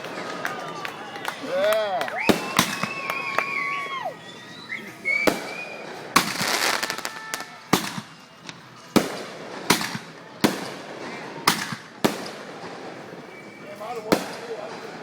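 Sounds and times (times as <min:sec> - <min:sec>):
firework crackling: 0:00.0 - 0:15.0
firework shell bangs: 0:05.3 - 0:13.1.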